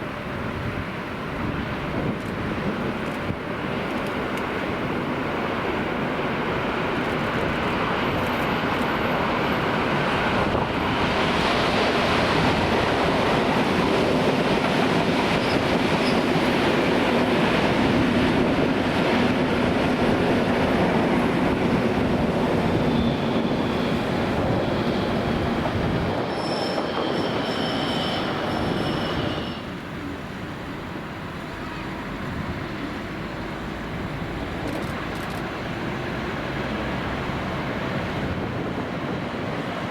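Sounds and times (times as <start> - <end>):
train rumbling on rails: 0.0 - 39.9
wheel squeals: 15.3 - 16.4, 22.7 - 25.4, 26.0 - 29.8.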